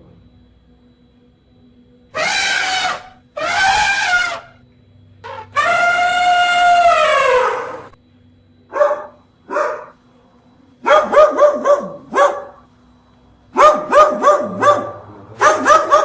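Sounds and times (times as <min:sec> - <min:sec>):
dog barking: 0:08.7 - 0:10.0, 0:10.8 - 0:12.7, 0:13.5 - 0:16.0.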